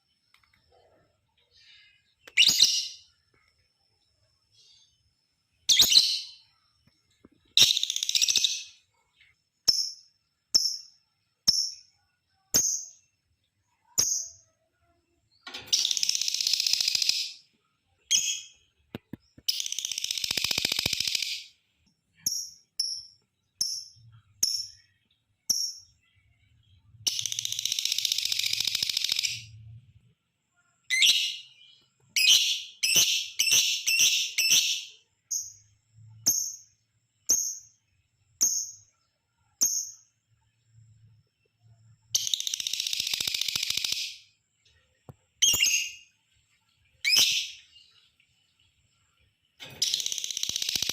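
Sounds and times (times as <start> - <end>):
lovebird chirping and trilling: 2.0 - 3.1, 5.6 - 6.5, 7.5 - 8.8, 15.6 - 17.4, 18.0 - 18.6, 19.4 - 21.6, 22.2 - 29.6, 30.8 - 35.6, 42.1 - 44.3, 45.4 - 46.1, 47.0 - 47.8, 49.6 - 50.9.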